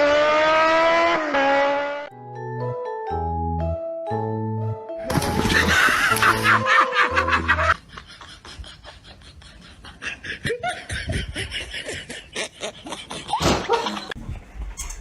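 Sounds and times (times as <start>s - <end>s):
people laughing: 5.2s - 14.2s.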